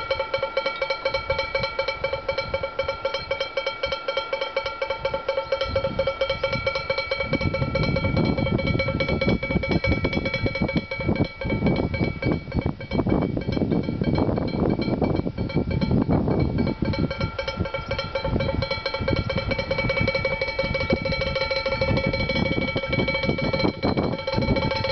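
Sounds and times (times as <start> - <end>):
wooden clappers clanging on pot: 0.0 - 24.9.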